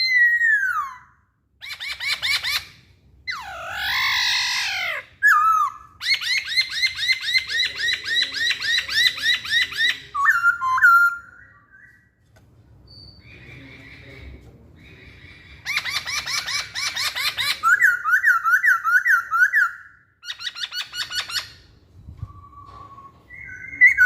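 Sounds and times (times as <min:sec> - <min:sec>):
bird singing whistled song: 0:09.3 - 0:12.2, 0:12.9 - 0:13.7, 0:15.7 - 0:21.4, 0:22.0 - 0:24.0.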